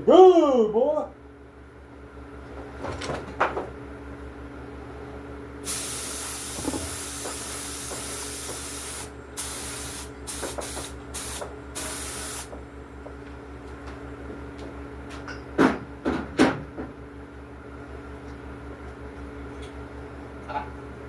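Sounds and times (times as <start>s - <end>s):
spray gun hissing: 5.6s - 12.6s.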